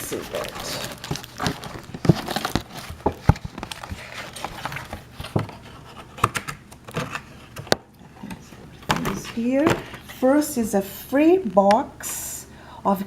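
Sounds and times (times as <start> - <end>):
packaging crinkling and rustling: 0.0 - 10.1.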